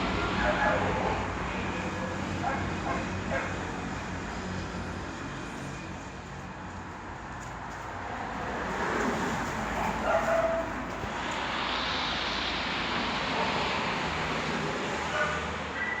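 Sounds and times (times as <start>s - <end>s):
steady rushing hiss: 4.0s - 15.7s.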